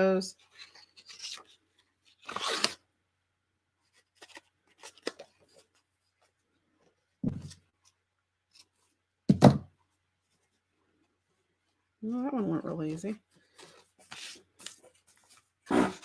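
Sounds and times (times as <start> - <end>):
paper rustling and scraping: 0.4 - 2.8, 13.4 - 16.0.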